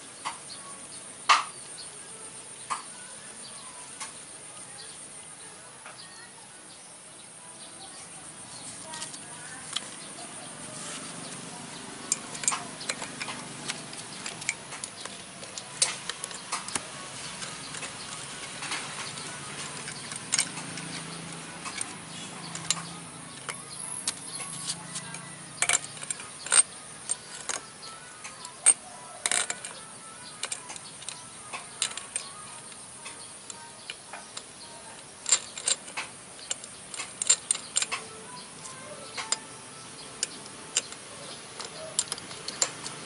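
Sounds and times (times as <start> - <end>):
metal clicks and taps: 11.3 - 43.0.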